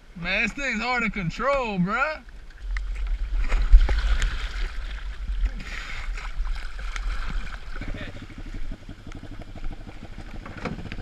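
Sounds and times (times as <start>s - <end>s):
wind rumble: 0.0s - 11.0s
water splashing: 0.3s - 11.0s
fast low pulsing: 2.4s - 11.0s.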